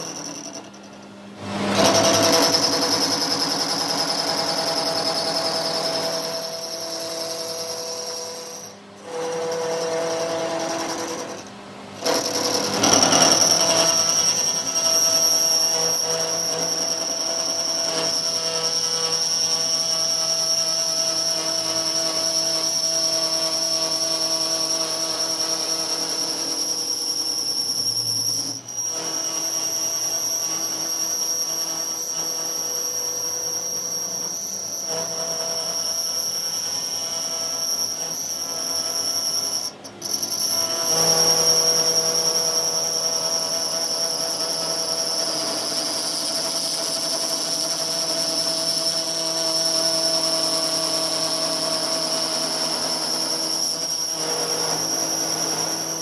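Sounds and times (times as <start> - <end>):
power machinery whining: 0.0 - 56.0.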